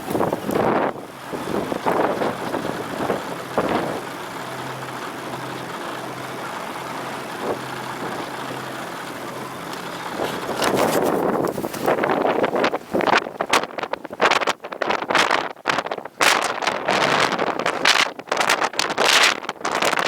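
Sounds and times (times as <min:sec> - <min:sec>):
wind rushing over microphone: 0:00.0 - 0:04.6, 0:10.0 - 0:20.0
vehicle engine humming: 0:00.0 - 0:13.5.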